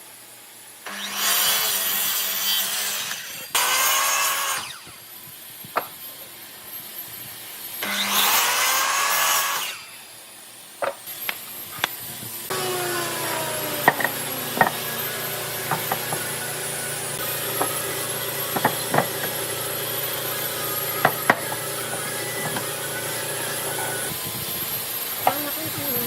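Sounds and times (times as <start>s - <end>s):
machine motor humming: 10.8s - 26.0s.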